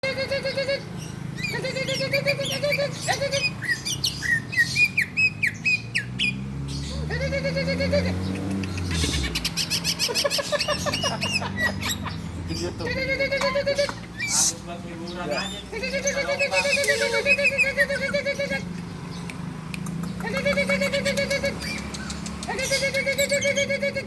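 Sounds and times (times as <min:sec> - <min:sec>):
bird singing chirps and trills: 0:00.0 - 0:24.0.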